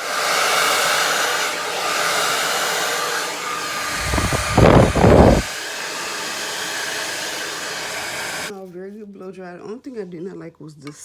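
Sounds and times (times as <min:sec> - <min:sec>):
blow dryer running: 0:00.0 - 0:08.5
loud low rumbling: 0:03.9 - 0:05.5.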